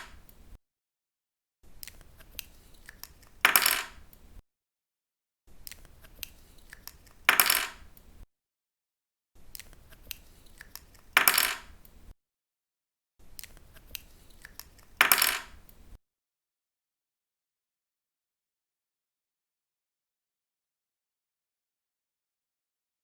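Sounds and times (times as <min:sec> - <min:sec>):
pen clattering on a table: 0:03.4 - 0:04.0, 0:07.2 - 0:07.9, 0:11.0 - 0:11.8, 0:14.9 - 0:15.6.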